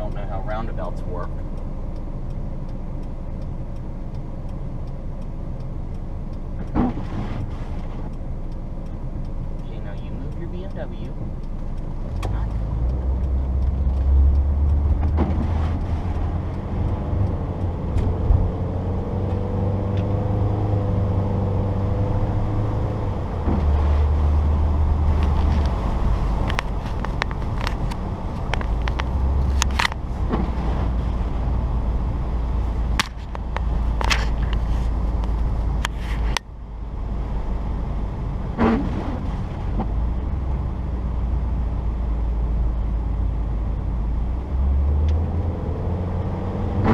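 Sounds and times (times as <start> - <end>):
car engine and road rumble: 0.0 - 46.9
sharp clicks and knocks: 5.6 - 9.7, 10.3 - 20.2, 25.0 - 31.4, 32.8 - 36.5.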